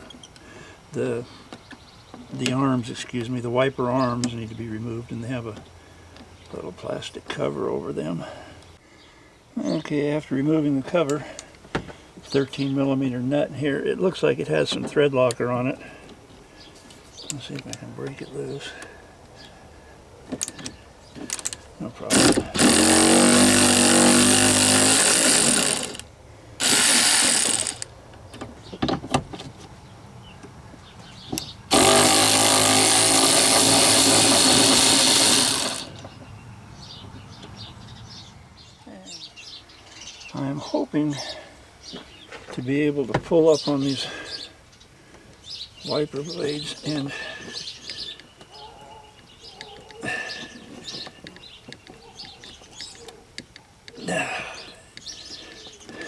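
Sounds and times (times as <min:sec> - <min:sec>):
birds chirping: 0:00.0 - 0:56.0
power tool spinning: 0:21.3 - 0:27.9, 0:31.7 - 0:36.2.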